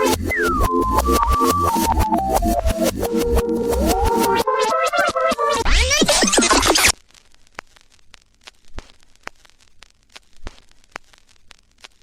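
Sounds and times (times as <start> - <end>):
electronic music: 0.0 - 6.9
crackling clicks: 0.0 - 12.0.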